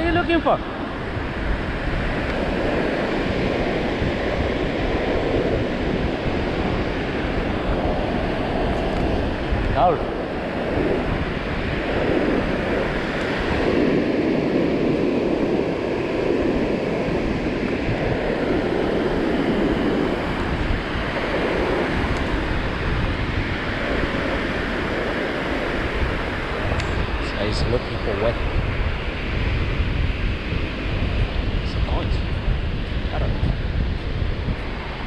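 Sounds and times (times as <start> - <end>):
ocean surf breaking: 0.0 - 35.0
wind buffeting microphone: 0.0 - 35.0.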